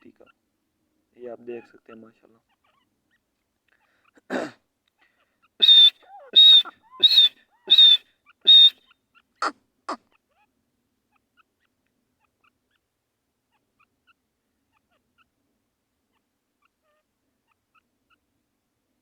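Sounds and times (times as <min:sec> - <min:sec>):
francolin whistled calls: 0:05.6 - 0:09.0.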